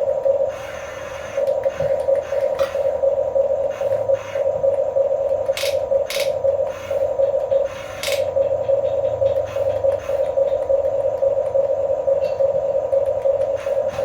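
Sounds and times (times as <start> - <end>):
electric motor and gearbox whine: 0.0 - 14.0
sharp click: 5.5 - 6.4.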